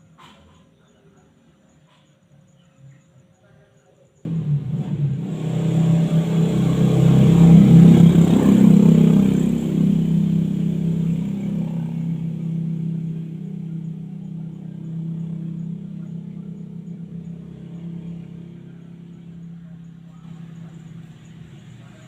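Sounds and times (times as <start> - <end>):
vehicle engine running: 4.3 - 22.0.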